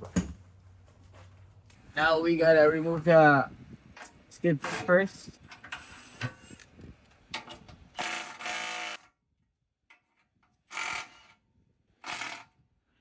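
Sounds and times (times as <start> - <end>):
power tool bursts: 8.0 - 9.1, 12.0 - 12.5.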